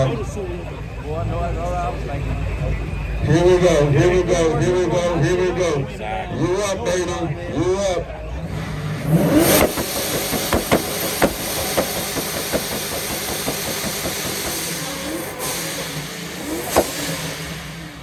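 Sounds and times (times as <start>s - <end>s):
car engine revving: 0.0s - 18.0s
exhaust cracks: 8.4s - 18.0s.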